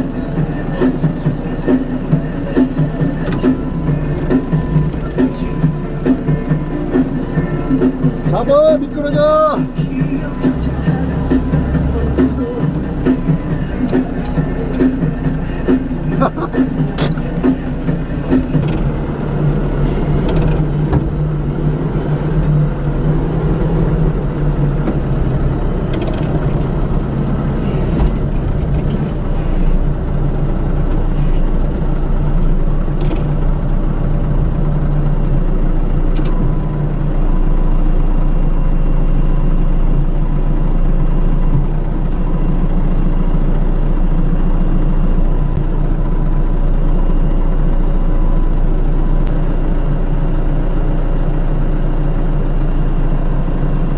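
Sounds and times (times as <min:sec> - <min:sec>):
engine humming: 0:00.0 - 0:53.9.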